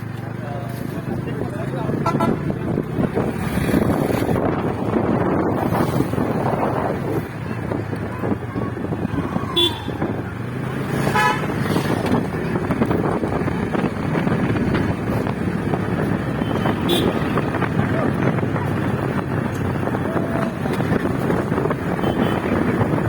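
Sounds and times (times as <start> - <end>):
motorcycle road and wind noise: 0.0 - 23.0
vehicle horn toot: 2.0 - 2.5, 9.6 - 10.0, 11.1 - 11.5, 16.4 - 17.4, 22.0 - 22.5.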